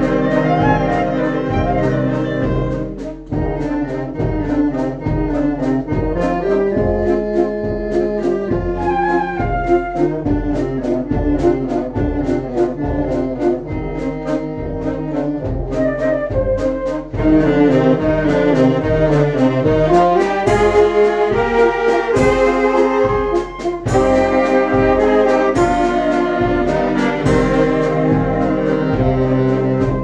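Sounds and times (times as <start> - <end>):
brass band playing: 0.0 - 30.0.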